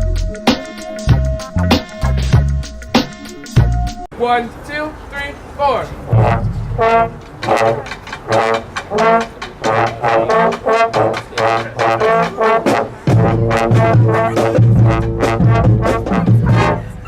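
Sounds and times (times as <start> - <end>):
low bass line: 0.0 - 3.0, 6.1 - 7.2, 13.1 - 17.0
brass horns playing punchy notes: 5.9 - 17.0.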